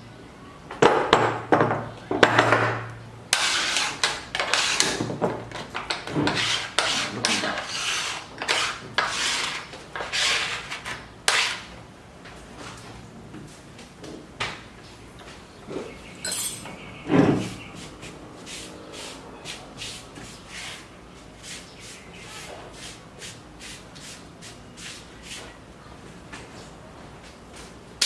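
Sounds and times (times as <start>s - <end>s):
rasping strokes on wood: 3.3s - 5.1s, 5.9s - 11.7s.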